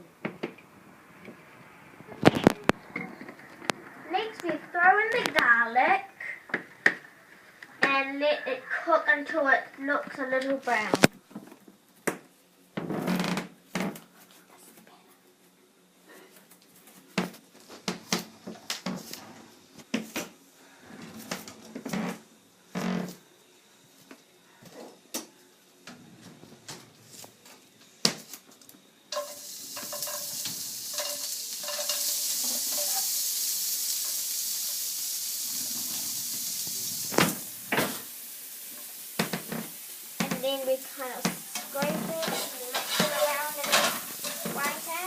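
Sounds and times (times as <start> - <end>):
garlic sizzling in oil: 29.1 - 45.0.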